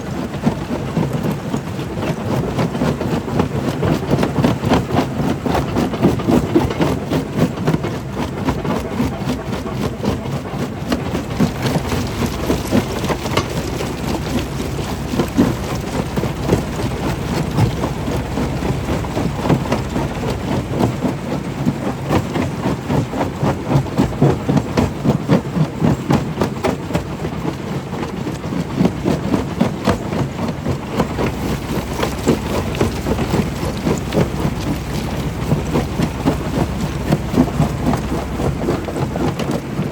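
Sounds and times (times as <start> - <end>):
heavy machine drone: 11.1 - 22.1, 30.7 - 39.9.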